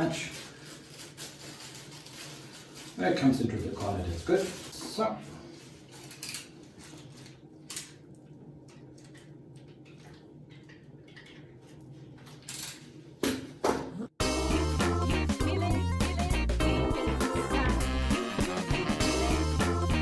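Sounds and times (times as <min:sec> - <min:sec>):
tool clicks and rustles: 0:05.8 - 0:08.0.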